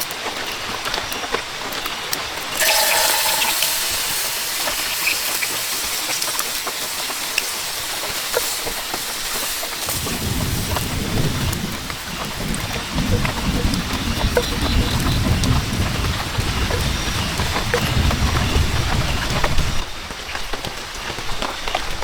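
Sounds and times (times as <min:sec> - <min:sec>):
heavy rain pouring: 0:02.4 - 0:20.1
low rumbling thunder: 0:09.9 - 0:19.8.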